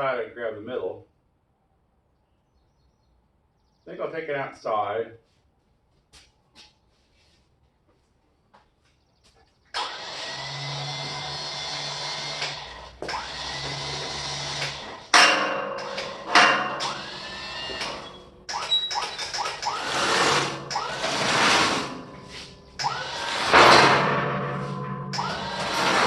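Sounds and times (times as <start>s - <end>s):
machine engine surging: 10.0s - 26.0s.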